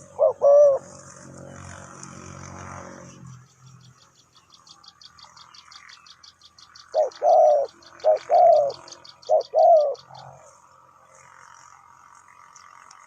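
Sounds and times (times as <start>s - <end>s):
dove cooing: 0.0s - 1.7s, 6.9s - 10.5s.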